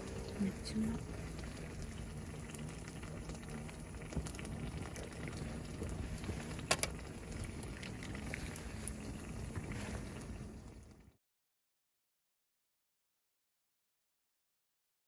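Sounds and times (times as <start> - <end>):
food bubbling in a frying pan: 0.0 - 11.2.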